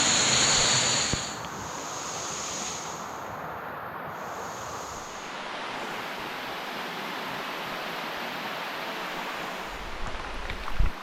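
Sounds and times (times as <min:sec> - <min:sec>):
small waterfall rushing: 0:00.0 - 0:03.2, 0:04.3 - 0:11.0.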